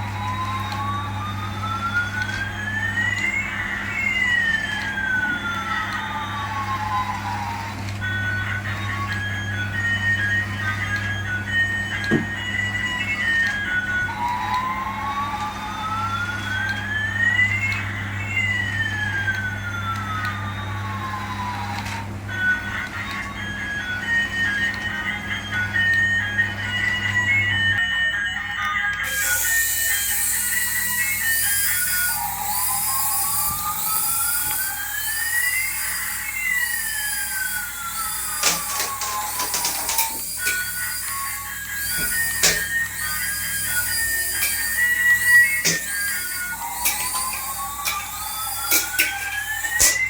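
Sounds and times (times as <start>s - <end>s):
electronic siren-like tone: 29.0s - 50.0s.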